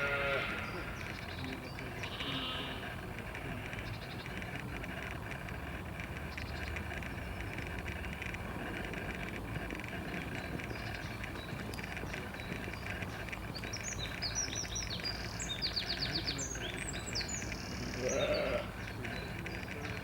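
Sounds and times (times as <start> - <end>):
steady background noise: 0.0 - 20.0
bird chirping and trilling: 10.2 - 20.0.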